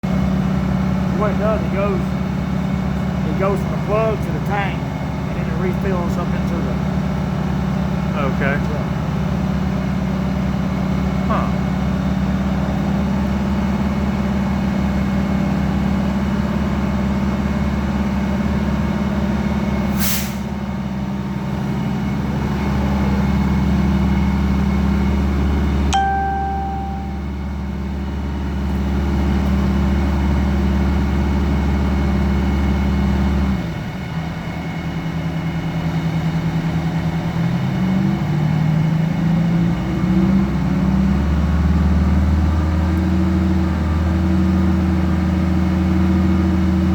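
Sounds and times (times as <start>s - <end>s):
fire truck engine running: 0.0s - 46.9s
short hiss: 20.0s - 20.5s.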